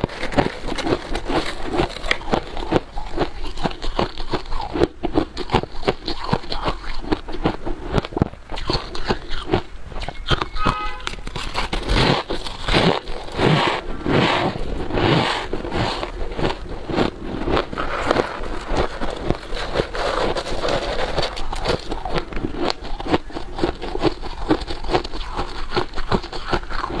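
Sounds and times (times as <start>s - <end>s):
crunchy chewing of frost: 0.0s - 27.0s
brief pitched tone: 10.1s - 11.2s.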